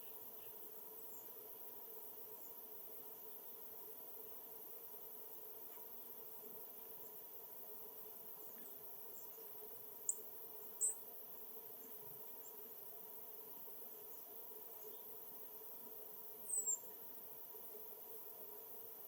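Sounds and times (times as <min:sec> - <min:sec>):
faint steady hum: 0:00.0 - 0:19.0
small bird chirping: 0:08.4 - 0:11.1, 0:14.1 - 0:15.2, 0:16.4 - 0:17.1.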